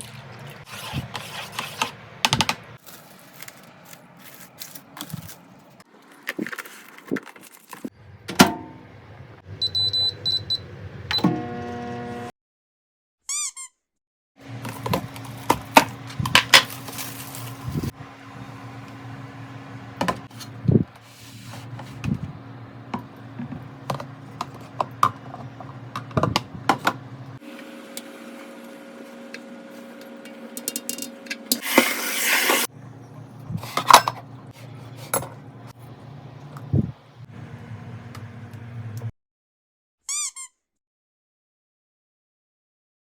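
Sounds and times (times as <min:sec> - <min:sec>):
kitchen utensils knocking and clinking: 0:30.5 - 0:32.7, 0:33.7 - 0:34.3.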